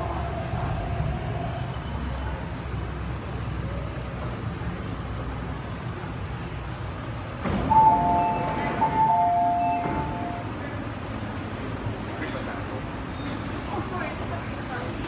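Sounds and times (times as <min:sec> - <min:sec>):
train rumbling: 0:00.0 - 0:15.0
two-tone door chime: 0:07.4 - 0:10.6.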